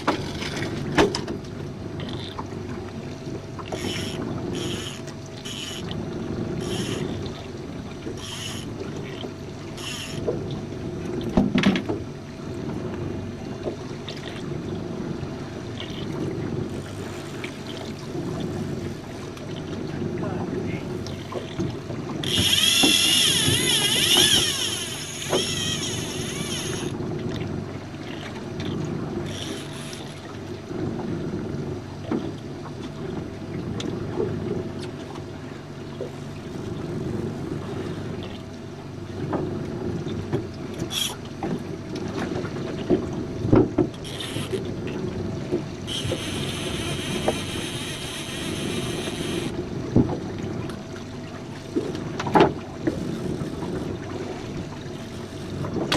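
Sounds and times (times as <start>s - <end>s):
boat motor drone: 0.0s - 55.9s
water noise: 0.0s - 55.9s
knocks against boat hull: 11.3s - 12.0s, 42.9s - 44.0s.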